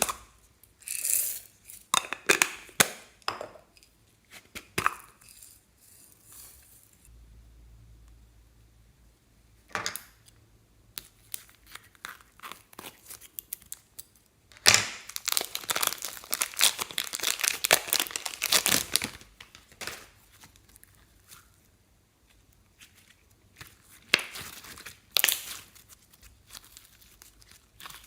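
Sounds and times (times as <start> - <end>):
slime crackling and popping: 14.6 - 19.8, 23.6 - 28.0.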